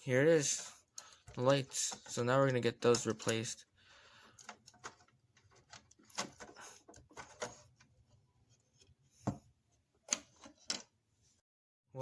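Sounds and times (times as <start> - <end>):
plastic toy parts clicking: 1.0 - 3.6.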